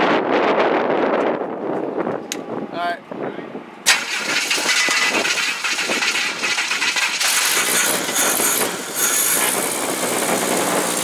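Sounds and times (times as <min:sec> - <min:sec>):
engine mechanical clatter: 0:03.9 - 0:11.0.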